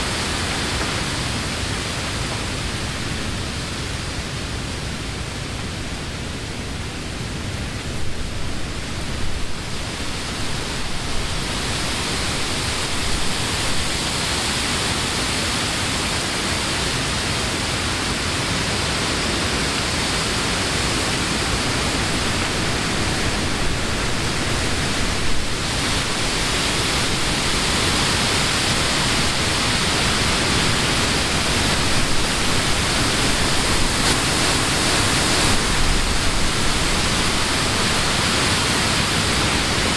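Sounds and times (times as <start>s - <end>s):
wind rustling leaves: 0.0s - 39.9s.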